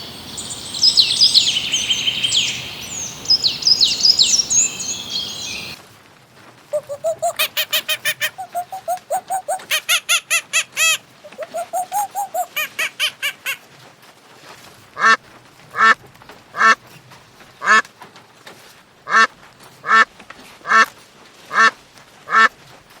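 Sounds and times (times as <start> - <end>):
duck quacking: 6.8 - 13.6.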